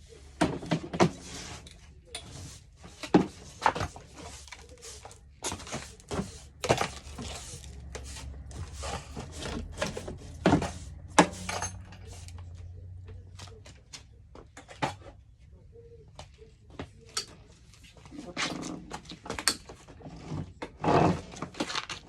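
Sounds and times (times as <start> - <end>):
objects knocking and thumping: 2.2 - 15.2.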